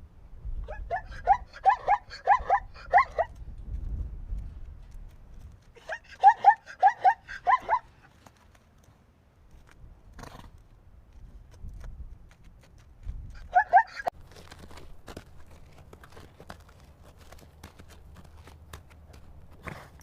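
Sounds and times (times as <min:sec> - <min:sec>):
zebra barking calls: 0:05.8 - 0:07.9, 0:13.4 - 0:14.1.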